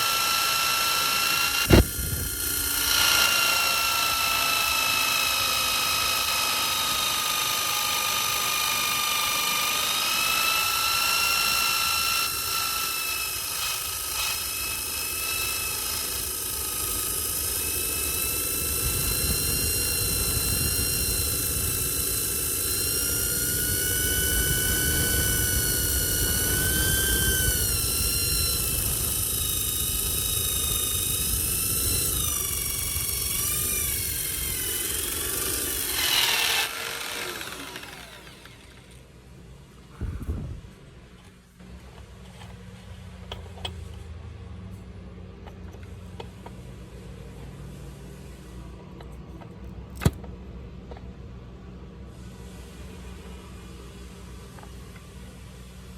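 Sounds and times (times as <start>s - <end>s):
electric power tool whining: 0.0s - 40.4s.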